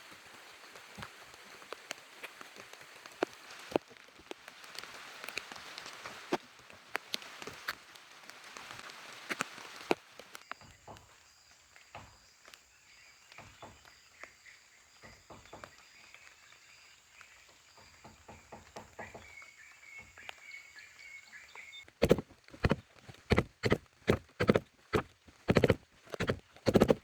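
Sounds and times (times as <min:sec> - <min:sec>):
faint rustling: 0:21.8 - 0:27.0.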